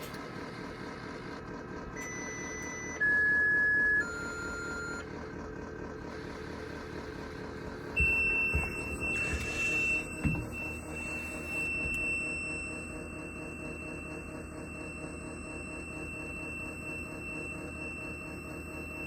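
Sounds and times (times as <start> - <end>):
high warning beep: 2.0 - 5.0, 7.9 - 19.0.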